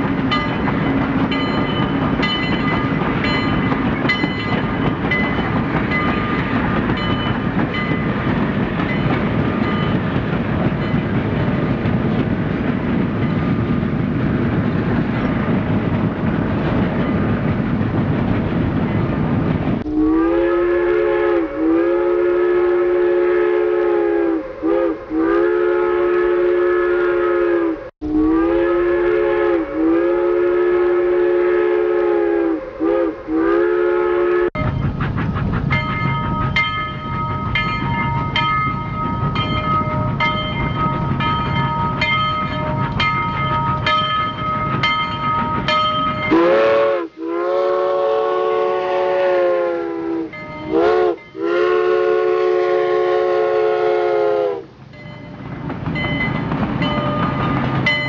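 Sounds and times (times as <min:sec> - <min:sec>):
train rolling along rails: 0:00.0 - 0:58.0
train whistle blasts: 0:19.8 - 0:34.6, 0:46.2 - 0:54.8.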